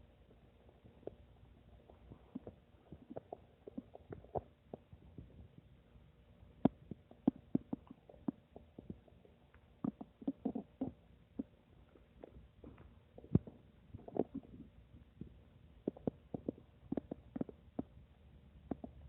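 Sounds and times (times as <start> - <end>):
stomach gurgling: 0.0 - 19.0.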